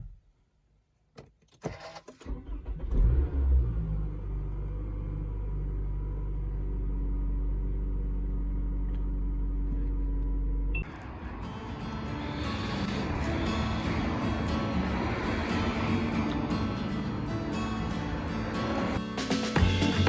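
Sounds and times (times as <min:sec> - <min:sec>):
starter cranking engine: 0:01.6 - 0:03.2
car engine idling: 0:04.4 - 0:19.0.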